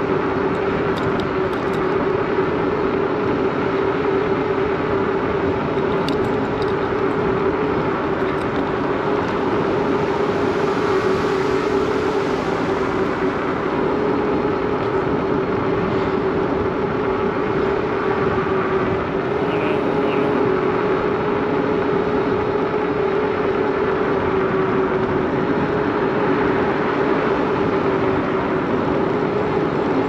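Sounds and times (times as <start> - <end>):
bicycle tyres rolling: 0.0 - 19.3
constant droning tone: 0.0 - 30.0.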